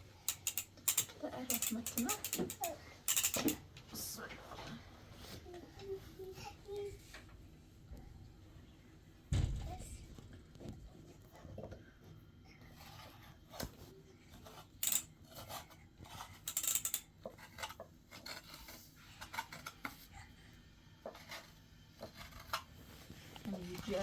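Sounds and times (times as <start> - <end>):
small objects clicking and scraping: 0.2 - 3.6, 14.4 - 20.0.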